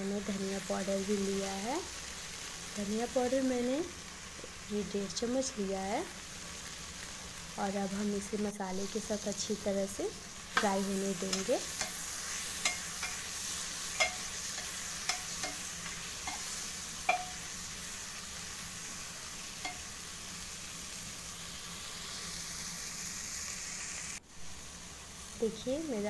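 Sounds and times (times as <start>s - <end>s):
beans sizzling in oil: 0.0s - 26.0s
metal spoon clinking against pot: 10.6s - 13.3s, 13.9s - 17.5s, 19.6s - 19.9s.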